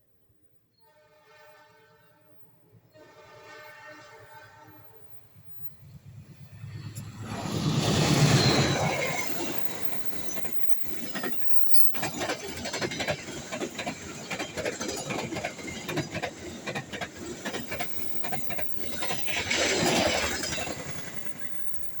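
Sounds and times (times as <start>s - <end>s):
train passing at speed: 1.2s - 22.0s
wheels clattering over rail joints: 6.2s - 22.0s.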